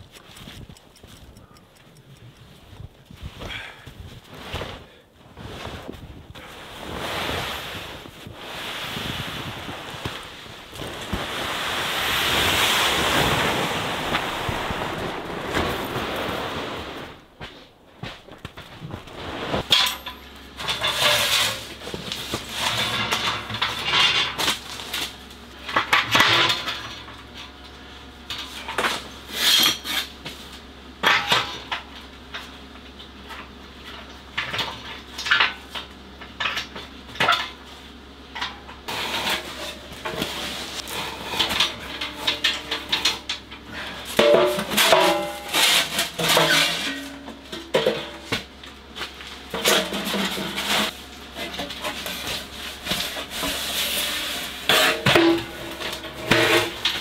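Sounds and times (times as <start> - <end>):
sheet metal clanks and scrapes: 38.4 - 48.4, 49.5 - 57.0.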